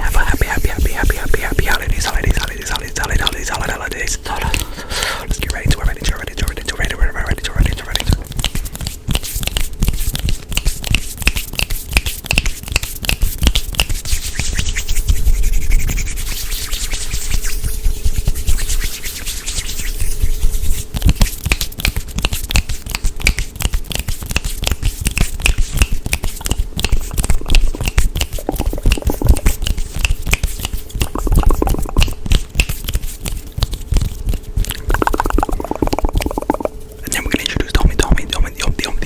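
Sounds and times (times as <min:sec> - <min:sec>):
hand and mouth clicks and taps: 0:00.0 - 0:14.0, 0:21.0 - 0:39.0
scratchy rubbing: 0:00.0 - 0:39.0.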